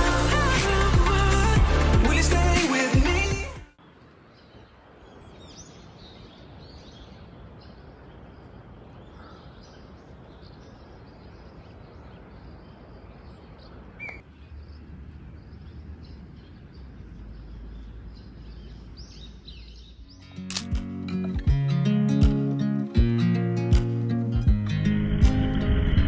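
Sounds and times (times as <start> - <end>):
outdoor background hiss: 3.8 - 25.1
birds chirping and calling: 4.4 - 20.6
low rumble: 24.5 - 26.0.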